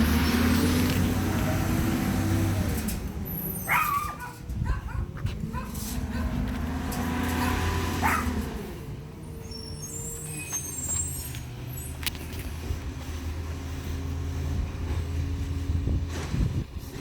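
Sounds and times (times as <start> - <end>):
truck engine humming: 0.0 - 17.0
faint high squeals: 9.2 - 12.0.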